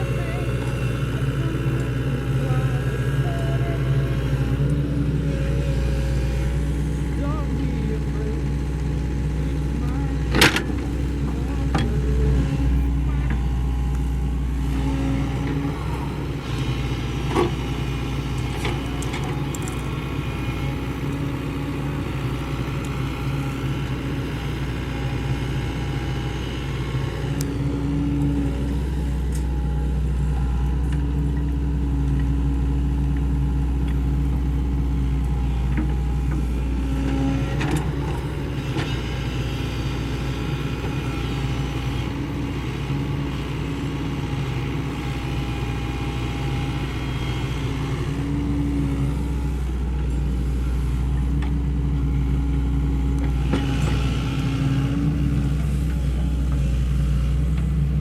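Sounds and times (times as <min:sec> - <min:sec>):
excavator diesel engine running: 0:00.0 - 0:58.0
higher engine tone: 0:00.0 - 0:58.0.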